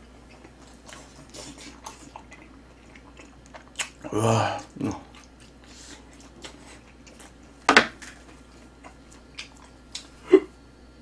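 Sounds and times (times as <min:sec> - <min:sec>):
person chewing: 0:00.0 - 0:10.2
short hummed vocal sound: 0:03.8 - 0:06.1, 0:10.0 - 0:10.7.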